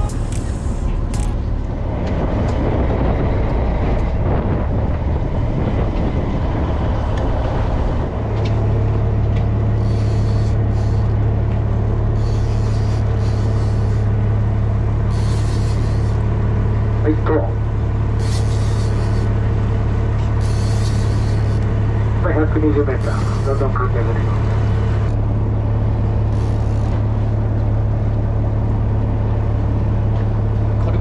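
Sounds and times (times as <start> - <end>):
motor droning: 6.9 - 31.0.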